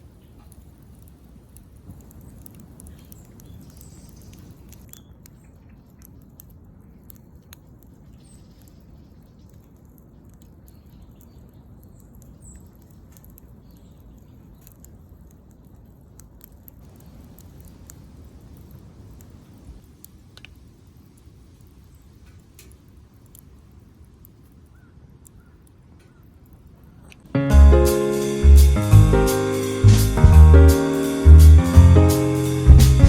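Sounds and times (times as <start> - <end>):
wood fire crackling and popping: 0.0 - 8.2, 9.4 - 24.6
low steady rumble: 29.9 - 30.7.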